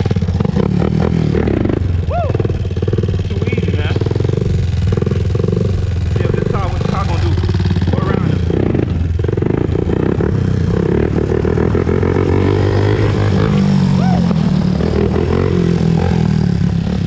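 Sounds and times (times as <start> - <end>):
atv engine running: 0.0 - 17.0.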